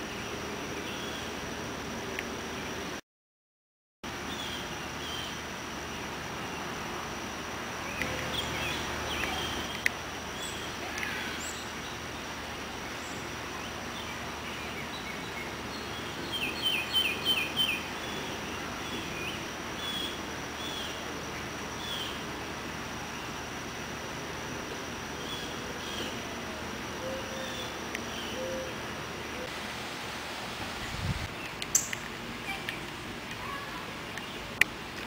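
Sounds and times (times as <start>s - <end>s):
outdoor background noise: 0.0s - 3.0s, 4.0s - 35.0s
birds chirping and calling: 7.8s - 12.3s, 12.9s - 21.0s, 31.3s - 32.9s.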